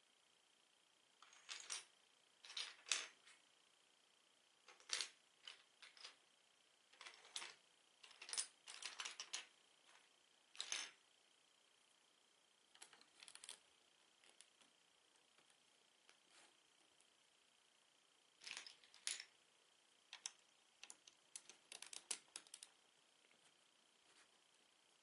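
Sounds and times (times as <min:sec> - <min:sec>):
plastic bricks clicking and rattling: 0:07.0 - 0:09.5, 0:20.1 - 0:22.7.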